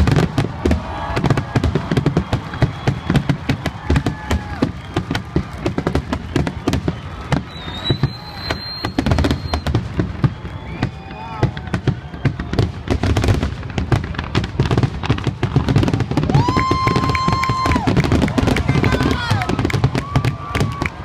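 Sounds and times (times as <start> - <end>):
firework shells bursting: 0.0 - 12.5
thin high whistle: 7.5 - 11.3.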